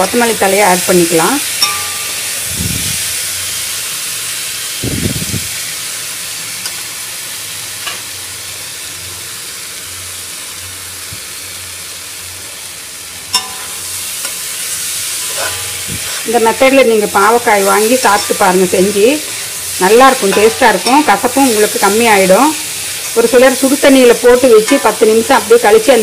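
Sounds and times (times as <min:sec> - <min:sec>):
vegetables sizzling in oil: 0:00.0 - 0:26.0
spatula scraping a pan: 0:15.1 - 0:16.3.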